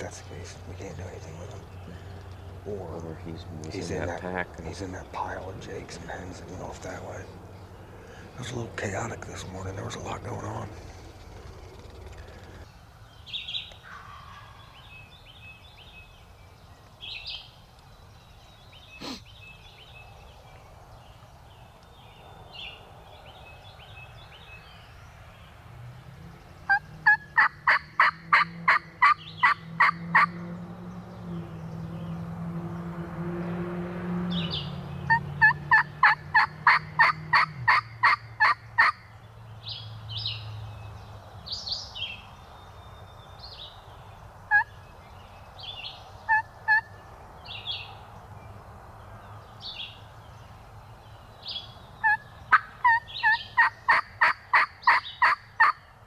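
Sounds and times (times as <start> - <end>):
small birds chirping: 0.0 - 56.0
turkey yelps: 26.7 - 30.3, 35.1 - 39.0, 52.0 - 55.8.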